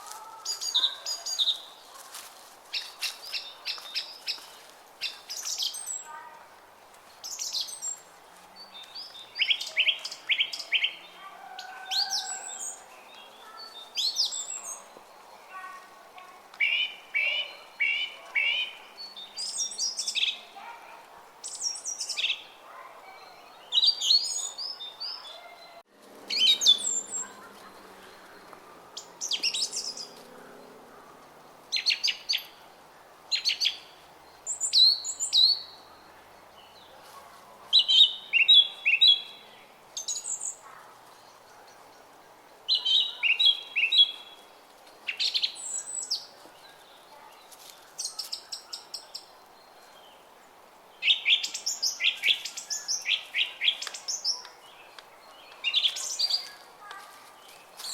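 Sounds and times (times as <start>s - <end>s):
songbirds chirping and singing: 0.0s - 6.3s, 7.1s - 57.9s.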